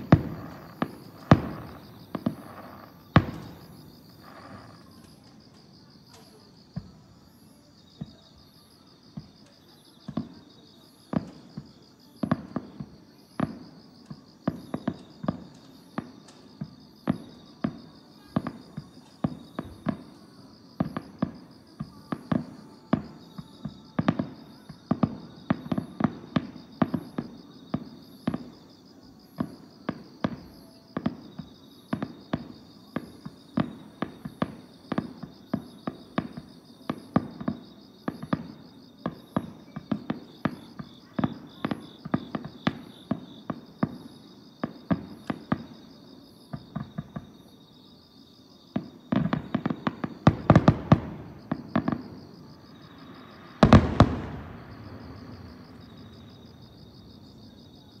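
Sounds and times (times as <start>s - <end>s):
distant fireworks bursting: 0.0s - 8.4s, 9.1s - 28.6s, 29.4s - 45.9s, 46.5s - 47.4s, 48.7s - 58.0s
insects trilling: 0.0s - 58.0s.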